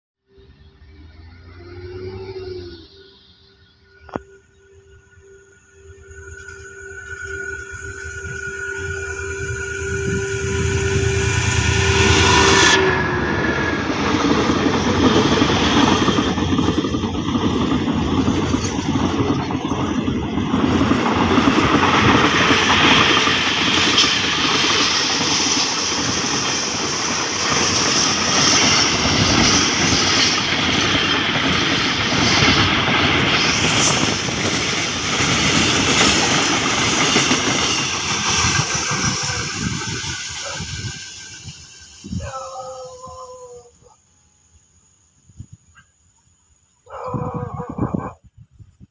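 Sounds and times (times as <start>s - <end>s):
locomotive horn: 0.4s - 16.1s, 38.4s - 40.8s
train wheels rumbling and clattering: 6.2s - 42.3s.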